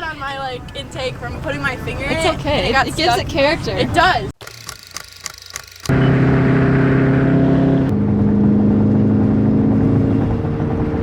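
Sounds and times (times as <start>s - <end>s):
car engine running: 0.0s - 4.3s.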